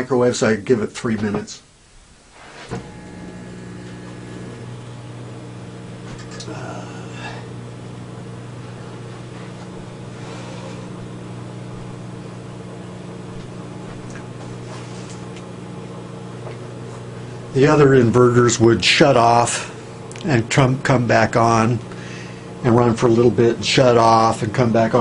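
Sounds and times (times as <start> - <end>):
microwave oven humming: 1.8 - 25.0
microwave oven click: 2.7 - 6.6.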